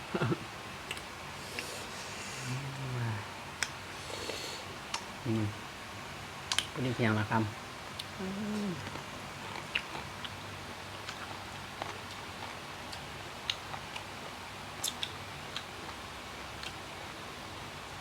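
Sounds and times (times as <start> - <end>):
person chewing crunchy food: 8.0 - 14.1
wet mouth clicks: 14.8 - 15.7.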